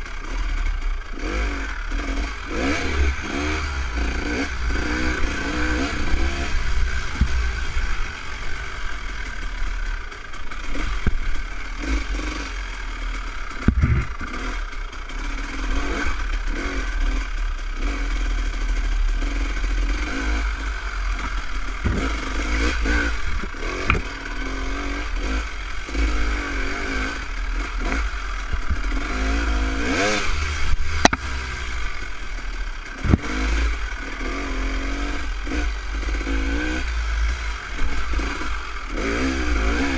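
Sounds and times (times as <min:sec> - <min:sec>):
dirt bike engine running: 0:00.0 - 0:39.9
steady low rumble: 0:02.2 - 0:15.1.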